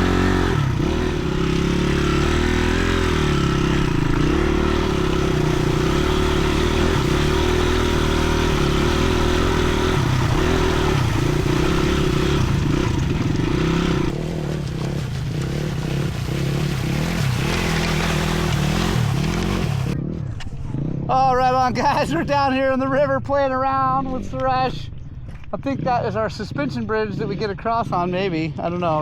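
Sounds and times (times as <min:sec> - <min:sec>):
dirt bike engine running: 0:00.0 - 0:22.2.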